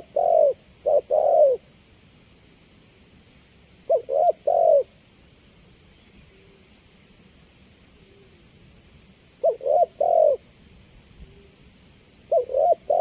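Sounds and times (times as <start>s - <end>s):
dove cooing: 0.0s - 1.7s, 3.9s - 4.9s, 9.4s - 10.4s, 12.3s - 13.0s.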